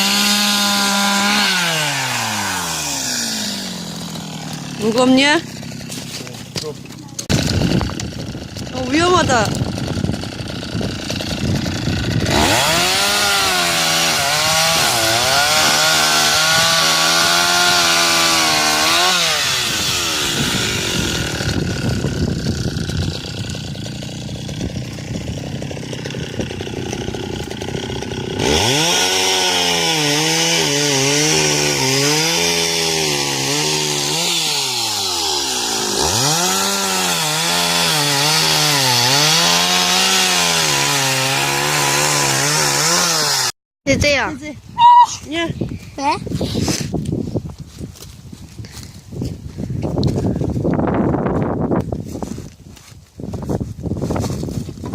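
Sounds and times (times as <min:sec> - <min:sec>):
chainsaw cutting wood: 0:00.0 - 0:44.2.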